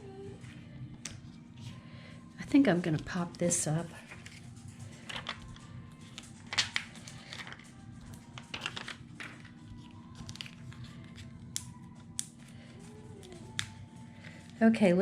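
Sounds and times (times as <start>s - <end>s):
quiet background music: 0.0s - 15.0s
paper rustling and crinkling: 4.0s - 11.3s.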